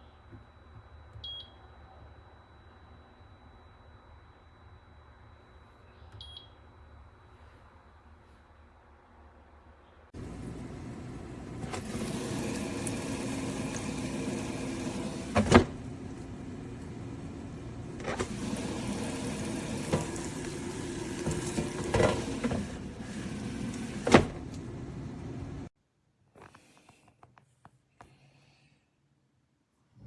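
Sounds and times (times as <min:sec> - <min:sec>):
machine hum: 0:10.2 - 0:25.7.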